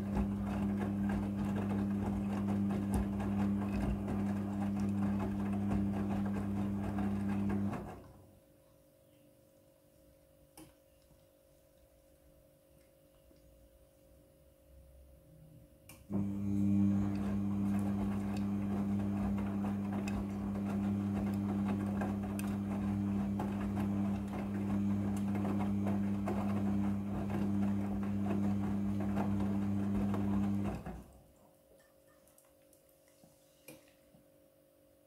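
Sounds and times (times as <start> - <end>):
machine humming: 16.1 - 30.9.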